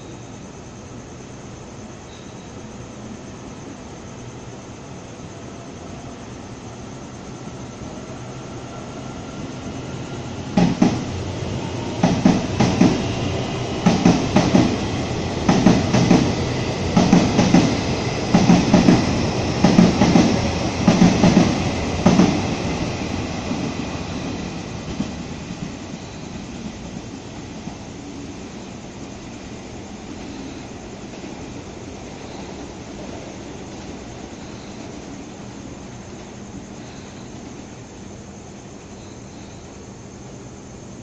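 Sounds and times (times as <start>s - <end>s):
train rumble: 0.0s - 41.0s
train wheels clacking on rail joint: 10.6s - 11.1s, 12.0s - 13.1s, 13.8s - 16.4s, 17.0s - 22.4s.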